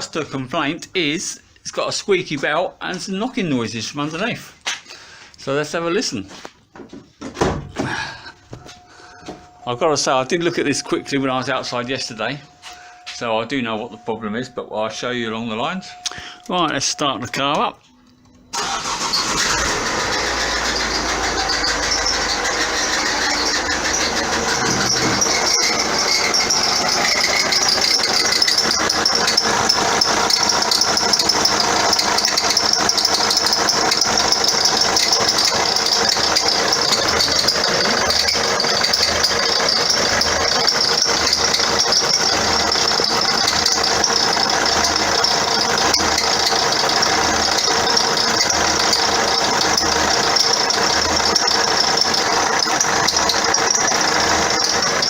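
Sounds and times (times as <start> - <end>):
diesel engine idling: 18.5 - 55.0
drive belt squeaking: 18.5 - 55.0.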